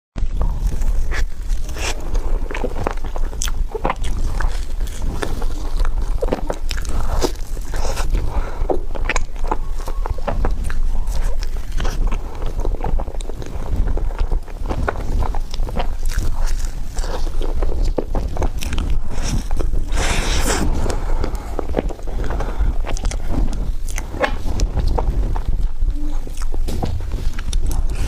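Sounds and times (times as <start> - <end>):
low hum: 0.2 - 28.0
mouth chewing clicks: 0.2 - 28.0.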